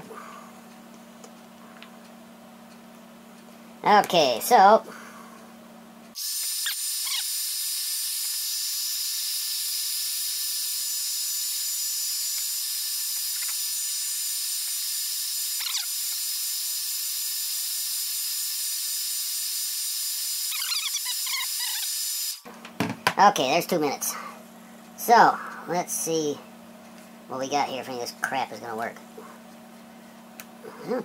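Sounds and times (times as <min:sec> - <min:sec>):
hot-air blower running: 0:03.4 - 0:23.2
faint short squeaks: 0:20.5 - 0:21.9.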